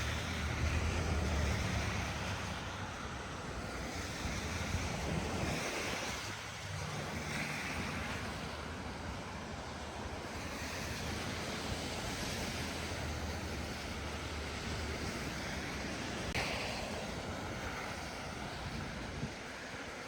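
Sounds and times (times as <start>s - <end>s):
tyres hissing through slush: 0.0s - 20.0s.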